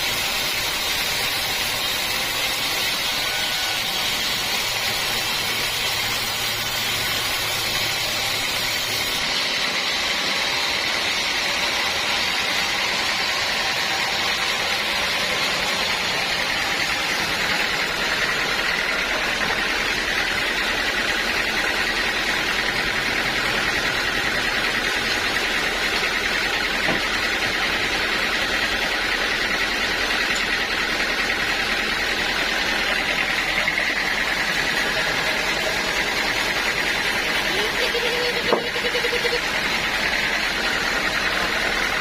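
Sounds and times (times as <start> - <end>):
sawmill saw running: 0.0 - 42.0.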